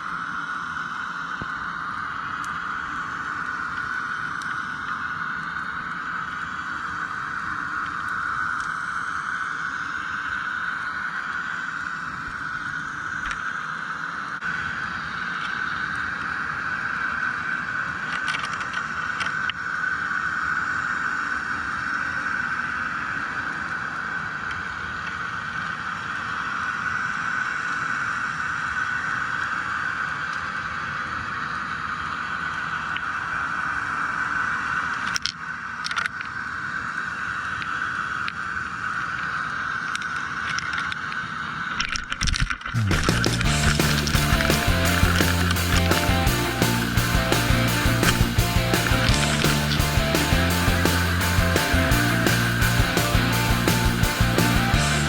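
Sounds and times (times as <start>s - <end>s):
boat engine underwater: 31.2s - 55.0s.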